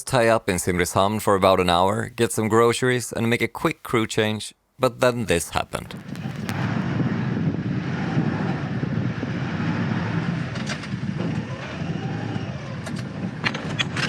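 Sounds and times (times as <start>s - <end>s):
diesel engine rumbling: 5.0s - 14.0s.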